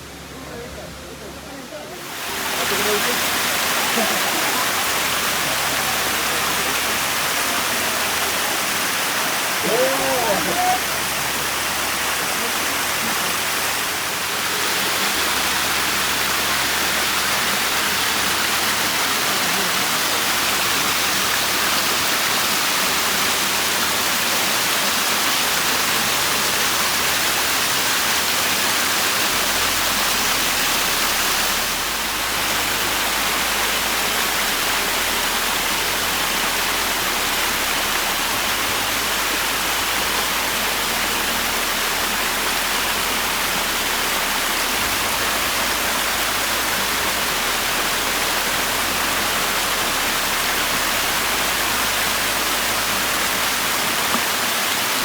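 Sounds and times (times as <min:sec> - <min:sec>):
water rushing in a creek: 0:01.1 - 0:55.0.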